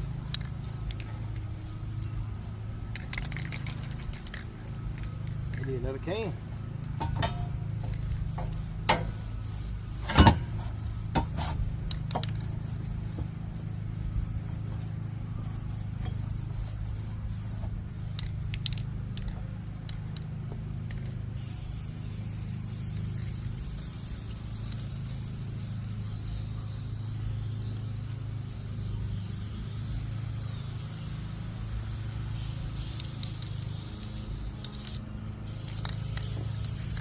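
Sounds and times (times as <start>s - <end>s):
spray paint hiss: 0.0s - 37.0s
spray can clicks and knocks: 6.9s - 9.2s, 10.0s - 12.4s, 18.1s - 21.2s, 32.3s - 37.0s.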